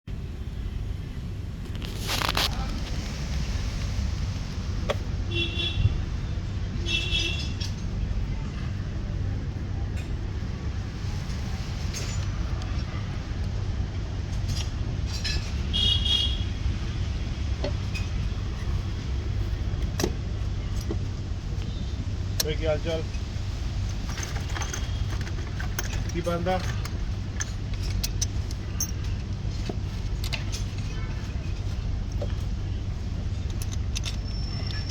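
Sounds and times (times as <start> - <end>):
light metallic clinks: 22.4 - 32.6, 33.4 - 34.9.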